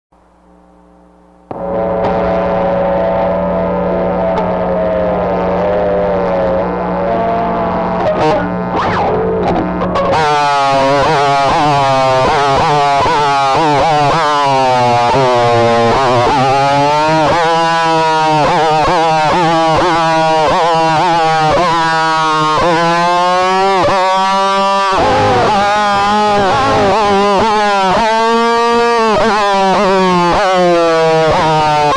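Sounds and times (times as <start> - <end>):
distorted electric guitar: 0.2 - 31.9
steady low drone: 1.4 - 21.7, 25.0 - 27.6.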